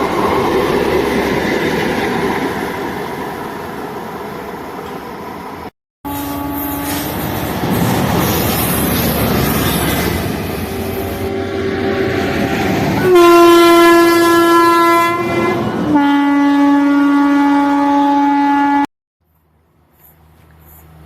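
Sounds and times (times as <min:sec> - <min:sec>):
running train noise: 0:00.0 - 0:18.2, 0:19.2 - 0:21.0
faint rumble of approaching train: 0:00.0 - 0:21.0
train horn: 0:06.1 - 0:07.2, 0:10.8 - 0:18.9.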